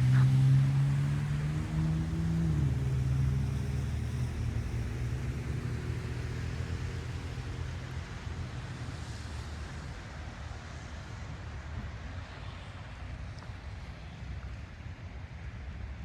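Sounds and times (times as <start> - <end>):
vehicle engine humming: 0.0 - 6.4.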